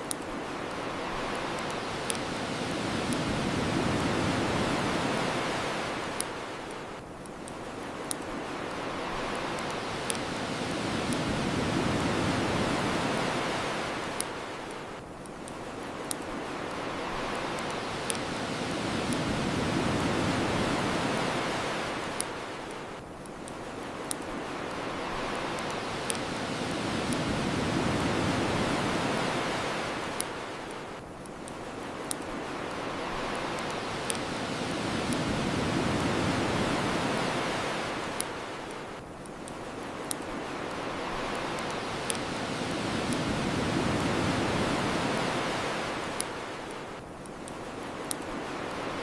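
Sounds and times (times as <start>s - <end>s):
bonfire crackling pops: 0.0s - 48.9s
ocean waves washing ashore: 0.0s - 49.0s.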